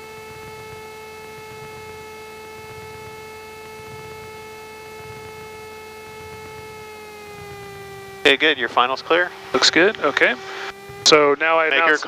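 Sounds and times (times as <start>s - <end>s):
electrical whine: 0.0s - 12.0s
faint engine idling rumble: 0.0s - 12.0s.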